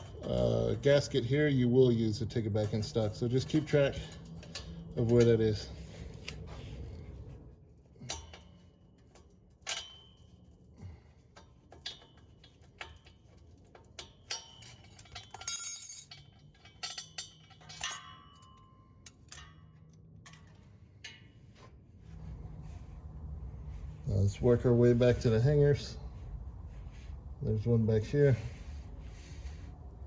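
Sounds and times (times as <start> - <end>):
metallic clinks and taps: 8.0 - 21.6.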